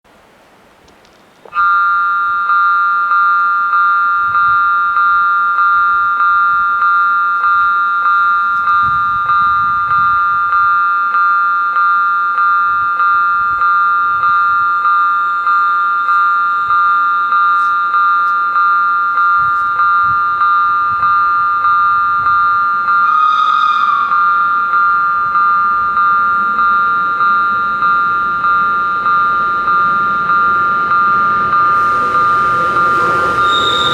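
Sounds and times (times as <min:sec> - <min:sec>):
level crossing warning bells: 0:01.5 - 0:33.9
wavering higher sound: 0:14.0 - 0:33.9.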